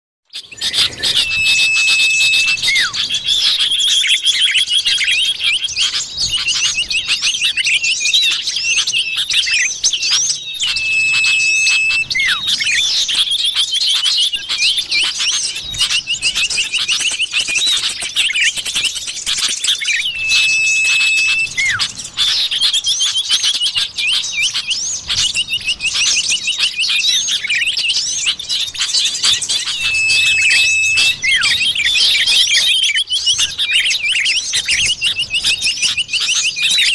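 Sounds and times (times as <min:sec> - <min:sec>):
long level bird whistle: 0:00.3 - 0:36.9
bird chattering chirps: 0:00.4 - 0:36.9.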